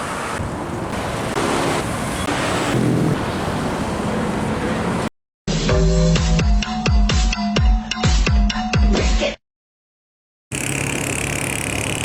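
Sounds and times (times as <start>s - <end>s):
road traffic passing close: 0.0s - 5.1s, 10.5s - 12.0s.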